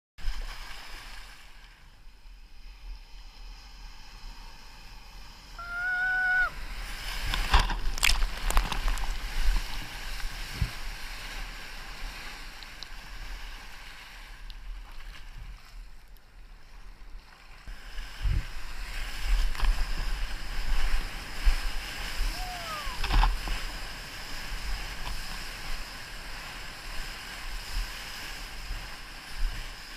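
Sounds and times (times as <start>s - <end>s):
surf and splashing whitewater: 0.2s - 29.9s.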